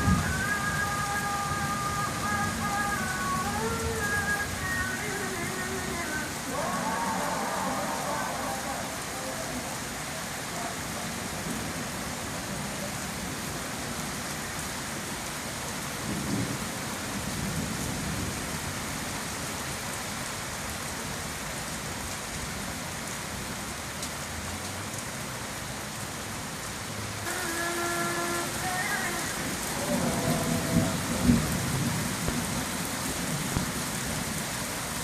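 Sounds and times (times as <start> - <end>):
rain falling: 0.0 - 35.0
thunder rumble: 28.4 - 34.3.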